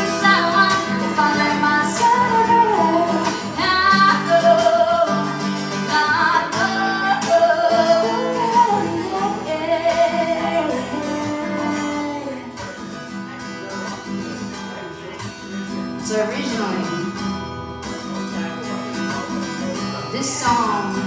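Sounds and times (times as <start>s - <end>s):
woman singing: 0.0s - 12.8s, 16.0s - 17.3s, 20.0s - 21.0s
acoustic guitar: 0.0s - 21.0s.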